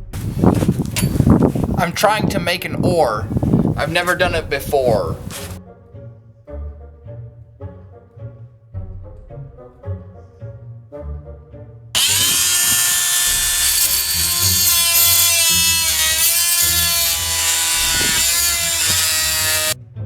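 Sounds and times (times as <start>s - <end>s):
multi-tool saw cutting wood: 3.3s - 5.6s, 12.0s - 19.8s
quiet background music: 4.2s - 12.3s.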